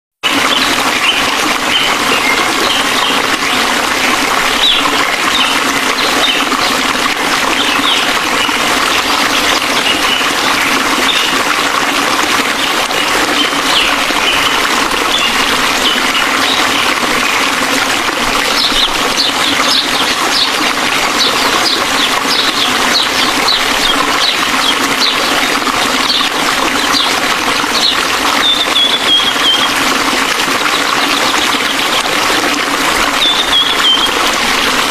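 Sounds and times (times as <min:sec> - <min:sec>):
waterfall rushing: 0:00.2 - 0:34.9
small birds chirping: 0:18.5 - 0:27.1, 0:27.8 - 0:29.8, 0:33.2 - 0:34.1.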